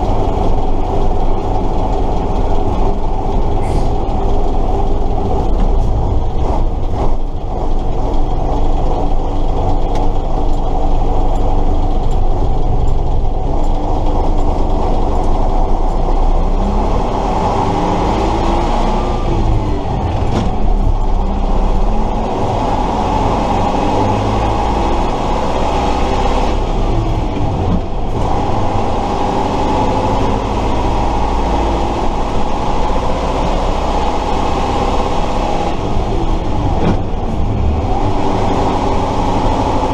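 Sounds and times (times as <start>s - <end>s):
truck diesel engine driving: 0.0s - 39.9s
truck rattle and gear noise: 0.0s - 39.9s.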